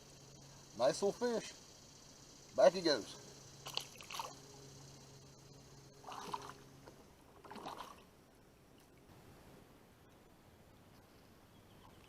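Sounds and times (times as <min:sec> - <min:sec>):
water sloshing and splashing: 0:03.6 - 0:04.4, 0:06.0 - 0:09.1.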